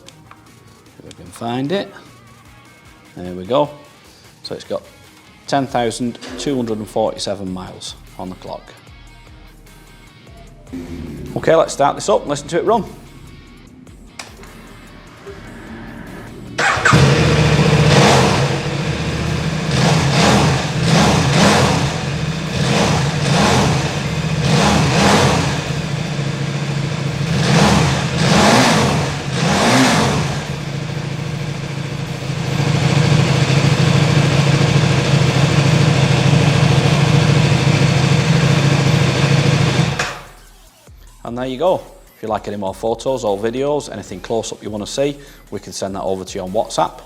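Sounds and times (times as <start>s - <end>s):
motorcycle engine revving: 10.7s - 40.3s
motorcycle engine idling: 16.3s - 40.3s.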